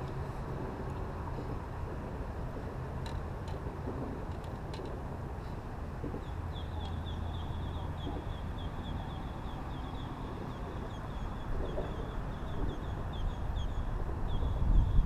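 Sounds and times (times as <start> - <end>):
steady low rumble: 0.0 - 15.0
bird chirping: 6.2 - 15.0.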